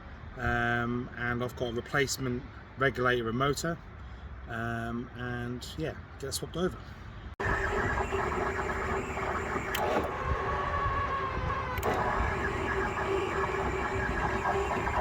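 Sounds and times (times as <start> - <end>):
car mechanical hum: 7.4 - 15.0
sharp clicks: 7.7 - 15.0.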